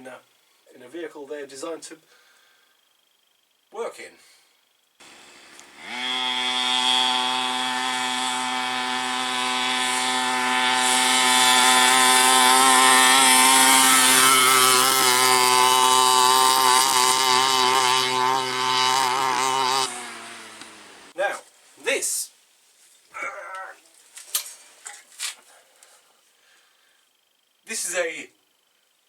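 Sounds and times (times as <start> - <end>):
two-stroke engine at high revs: 5.0 - 21.2.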